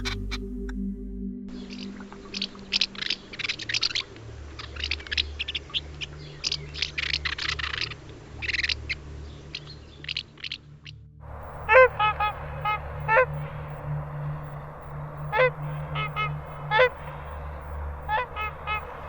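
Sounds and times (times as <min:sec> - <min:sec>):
honking call: 0:11.3 - 0:19.0
bird screeching calls: 0:11.4 - 0:14.0, 0:14.8 - 0:19.0.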